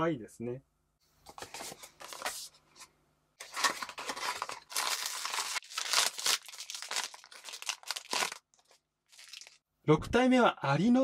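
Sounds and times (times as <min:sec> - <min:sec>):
foil bag crinkling and tearing: 0:03.4 - 0:09.6.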